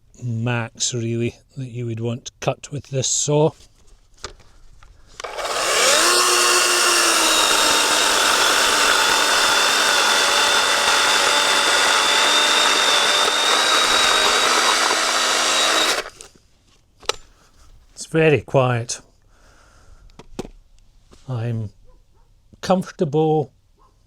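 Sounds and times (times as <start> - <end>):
electric chainsaw cutting log: 5.2 - 16.3.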